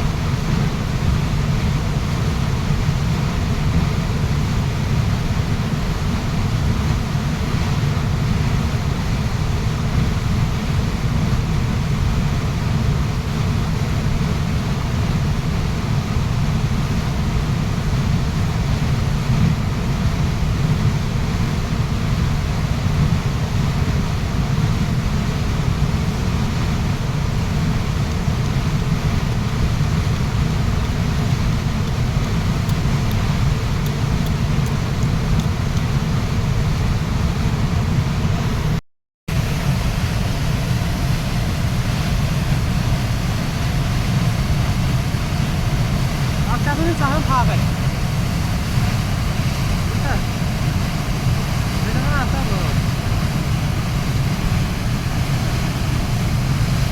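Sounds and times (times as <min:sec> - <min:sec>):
waterfall rushing: 0:39.3 - 0:56.9.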